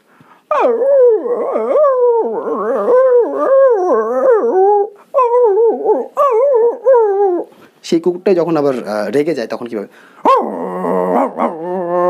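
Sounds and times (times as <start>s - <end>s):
man imitating puppy whining: 0.5s - 7.5s, 10.2s - 12.0s.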